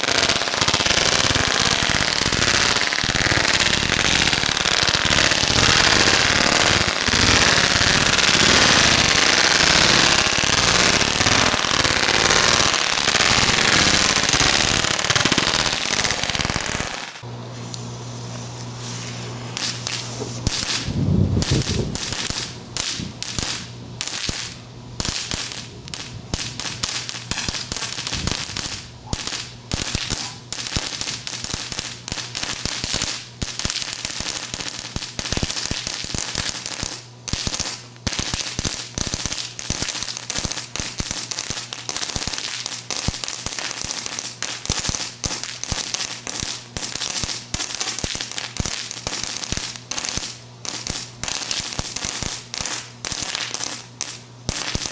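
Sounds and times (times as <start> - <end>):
string of firecrackers banging: 0.0 - 17.2, 19.5 - 54.9.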